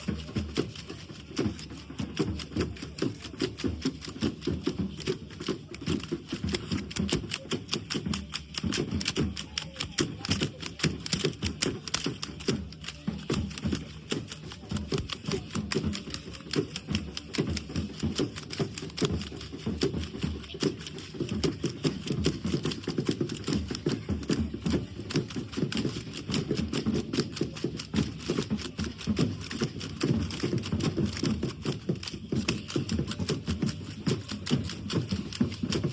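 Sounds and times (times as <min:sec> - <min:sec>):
rapid clattering and tapping: 0:00.0 - 0:35.9.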